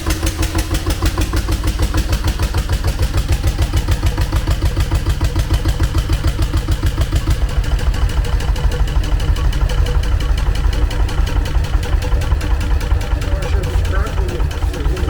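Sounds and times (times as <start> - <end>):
stationary engine running: 0.0 - 15.0.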